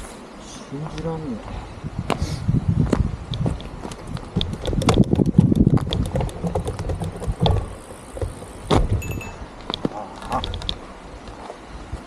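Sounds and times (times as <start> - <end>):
hard clicks and knocks: 4.3 - 9.1.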